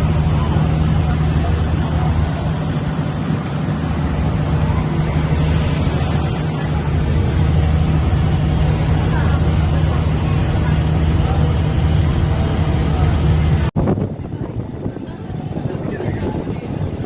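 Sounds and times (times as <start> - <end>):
boat engine humming: 0.0 - 17.0
continuous rushing noise: 0.0 - 17.0.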